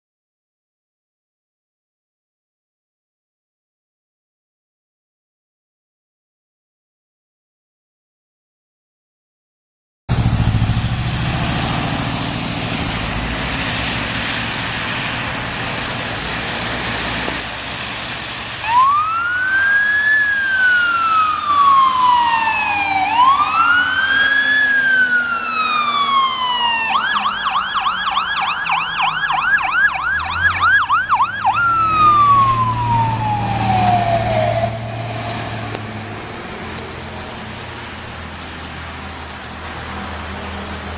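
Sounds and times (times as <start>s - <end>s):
fire truck engine: 10.1s - 40.9s
road noise: 10.1s - 40.9s
electronic siren wailing and yelping: 18.6s - 35.3s.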